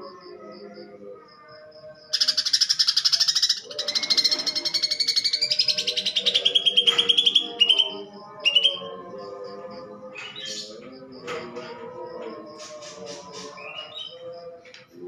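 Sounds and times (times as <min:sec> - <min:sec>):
bird singing rapid harsh trills: 0:02.1 - 0:09.0.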